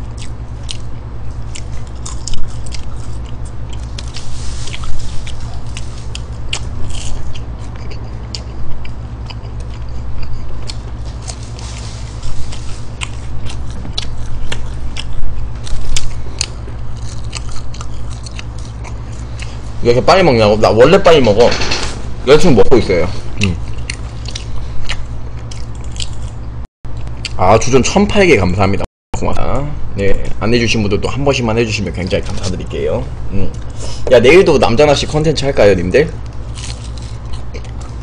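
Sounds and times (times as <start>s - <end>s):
chewing crunchy fried food: 0.0s - 19.9s, 23.3s - 27.7s, 34.8s - 38.0s
low hum: 0.0s - 38.0s.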